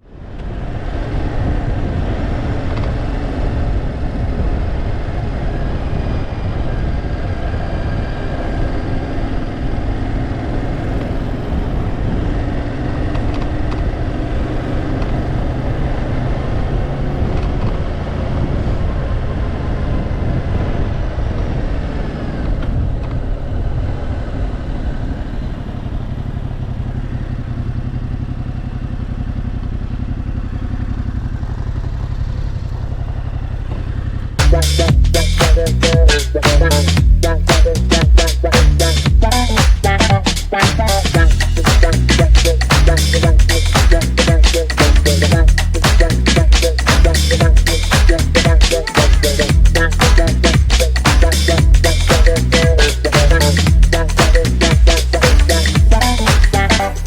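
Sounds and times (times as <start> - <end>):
wind rush on microphone: 0.1 - 26.1
motorcycle engine running: 0.2 - 57.0.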